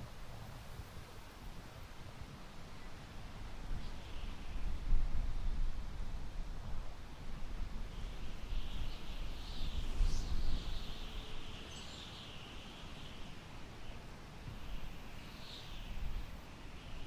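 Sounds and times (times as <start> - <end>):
wind rumble on microphone: 0.0 - 11.8.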